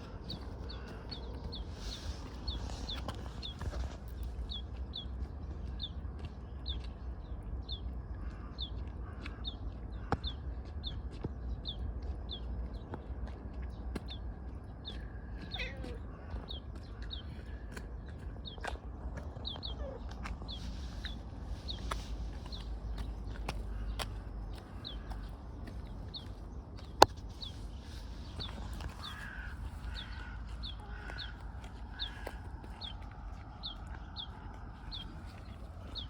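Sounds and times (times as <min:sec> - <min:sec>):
low rumble: 0:16.2 - 0:36.0.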